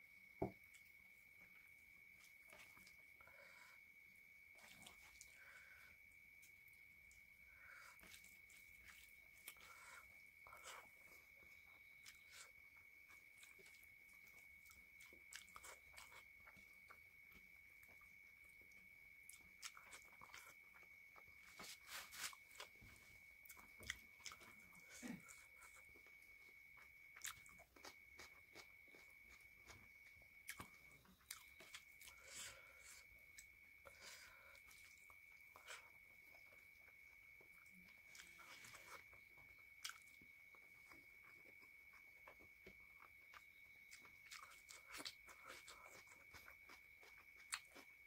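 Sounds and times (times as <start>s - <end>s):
person chewing food: 0.3s - 48.0s.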